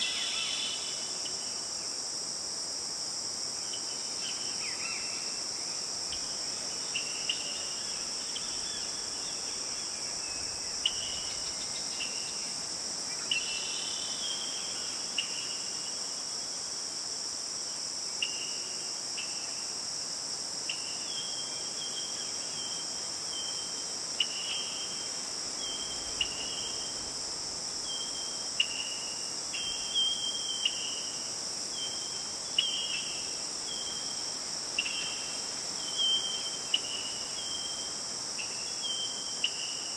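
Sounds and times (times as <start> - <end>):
high-pitched insect drone: 0.0 - 1.9.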